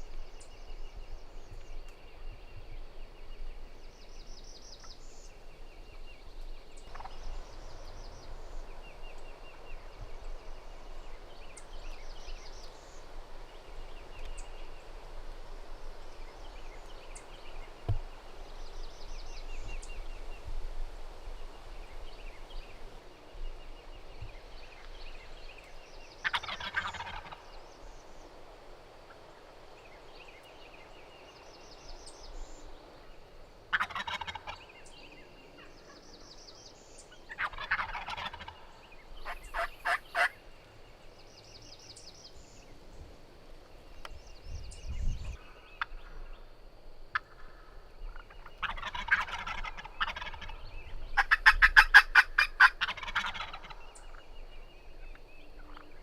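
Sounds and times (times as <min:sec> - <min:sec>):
turkeys gobbling: 0:06.9 - 0:07.2, 0:26.2 - 0:27.5, 0:33.7 - 0:34.7, 0:37.3 - 0:40.4, 0:47.1 - 0:47.5, 0:48.1 - 0:50.6, 0:51.2 - 0:54.0.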